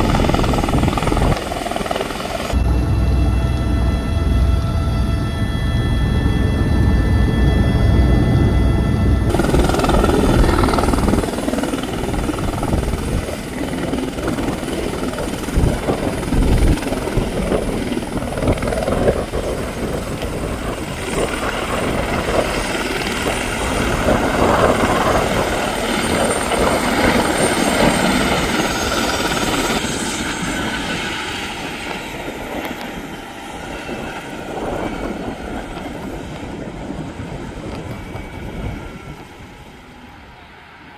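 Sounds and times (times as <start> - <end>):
helicopter rotor and engine: 0.0 - 40.9
high whine falling in pitch: 1.9 - 13.4.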